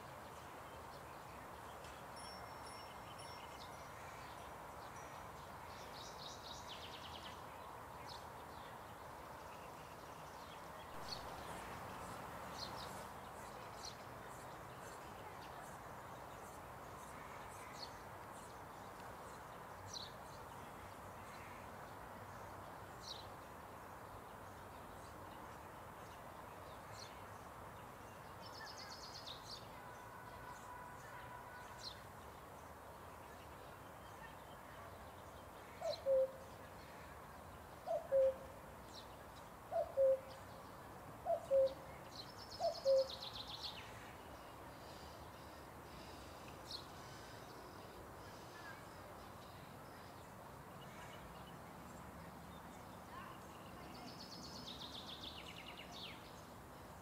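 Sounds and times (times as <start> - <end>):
steady background hiss: 0.0 - 57.0
faint high bird chirps: 35.7 - 36.4, 37.9 - 38.5, 39.7 - 40.4, 41.3 - 43.8.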